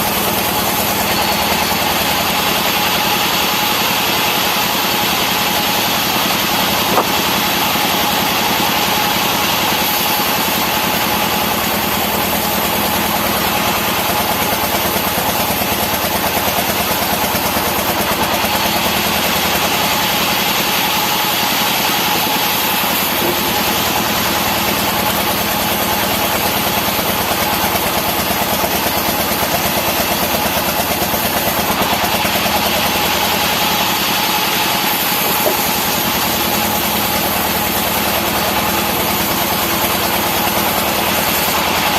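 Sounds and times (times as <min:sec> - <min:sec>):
saw engine running: 0:00.0 - 0:41.9
steady whine: 0:06.0 - 0:08.8.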